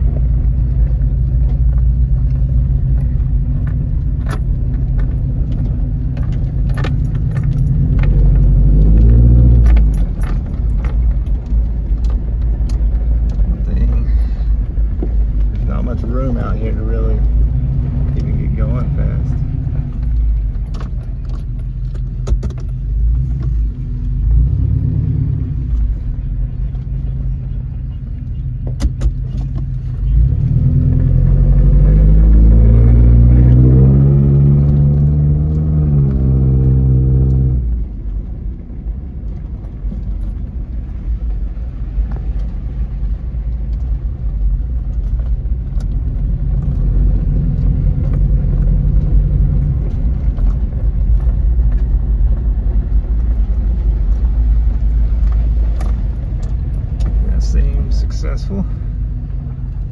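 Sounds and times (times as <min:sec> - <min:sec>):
truck engine revving: 0:06.5 - 0:11.0, 0:30.0 - 0:37.7.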